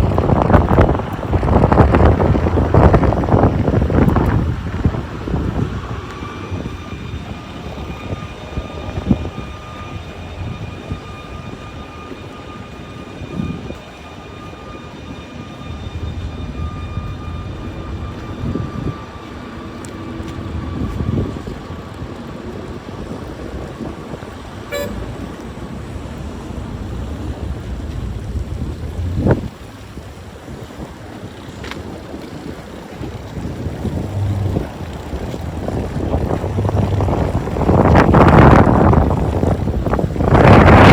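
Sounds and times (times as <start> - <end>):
rumbling city traffic: 0.0 - 40.9
wind buffeting microphone: 0.0 - 40.9.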